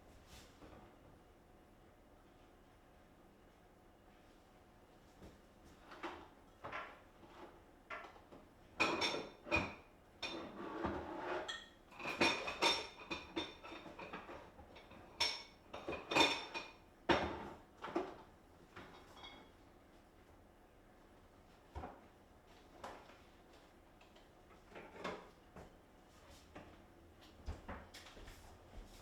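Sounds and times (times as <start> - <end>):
dishes and cutlery clinking: 8.8 - 18.2, 18.8 - 19.6.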